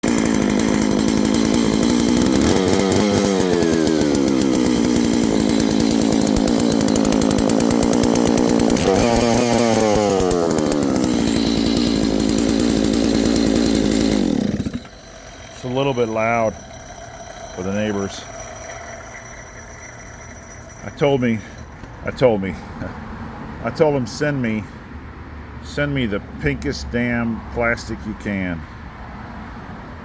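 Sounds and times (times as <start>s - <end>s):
chainsaw running at high revs: 0.0s - 22.2s.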